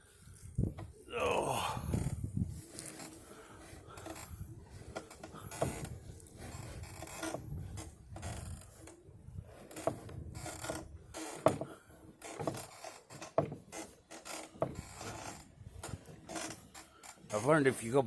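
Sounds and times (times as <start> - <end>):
wheelbarrow rattling and creaking: 0.0 - 18.0.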